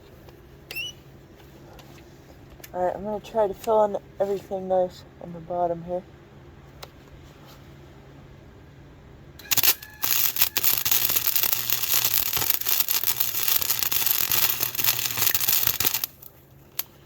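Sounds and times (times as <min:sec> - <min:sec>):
welding arc crackling and hissing: 0:09.4 - 0:17.0.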